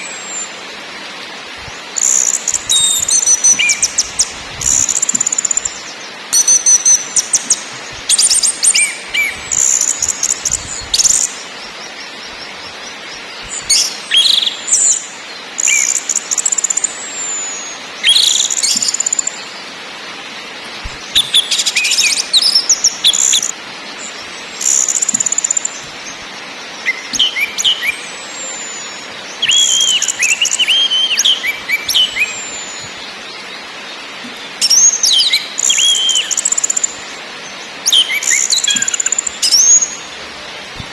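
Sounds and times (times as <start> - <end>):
steady hiss: 0.0 - 40.9
thrush calling: 1.9 - 11.5, 20.9 - 23.6, 26.8 - 33.0.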